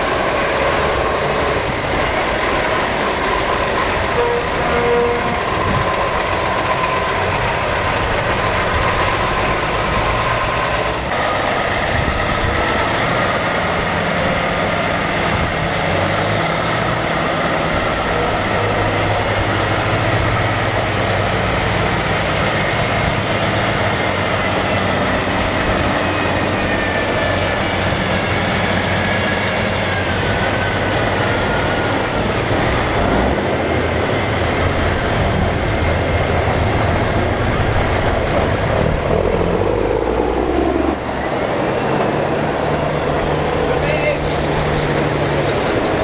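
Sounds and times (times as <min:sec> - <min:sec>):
heavy trucks driving past: 0:00.0 - 0:46.0
low sweep: 0:22.6 - 0:46.0.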